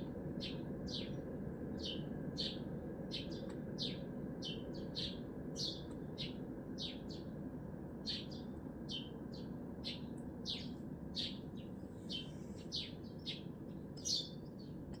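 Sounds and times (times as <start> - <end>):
city traffic hum: 0.0 - 15.0
small bird chirping: 8.0 - 15.0.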